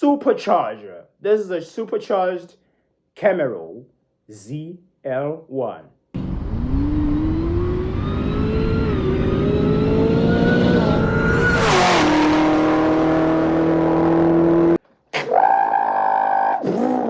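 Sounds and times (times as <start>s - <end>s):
car engine accelerating: 6.2s - 14.8s
rushing burst: 10.6s - 14.3s.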